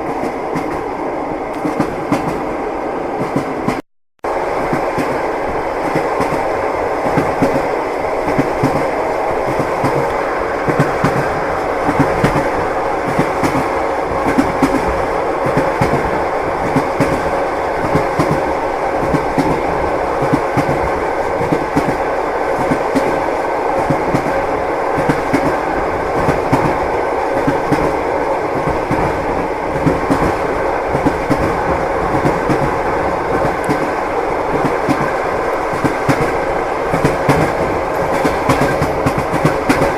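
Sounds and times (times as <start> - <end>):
train wheels clickety-clack: 0.0 - 0.9, 1.5 - 2.5, 3.2 - 3.8, 4.6 - 39.9
railway carriage rumble: 0.0 - 39.9.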